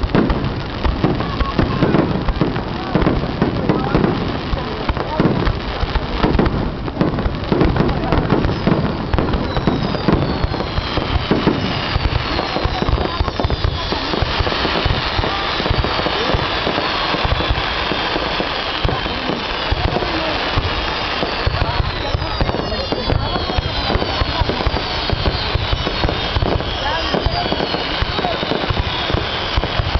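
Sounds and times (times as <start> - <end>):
fireworks crackling and cracking: 0.0 - 29.9
falling firework whistles: 6.3 - 29.9.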